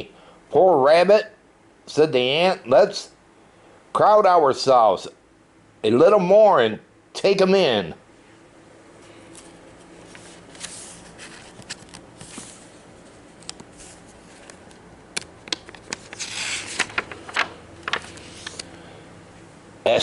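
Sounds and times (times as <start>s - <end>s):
book pages turning: 9.3s - 18.7s.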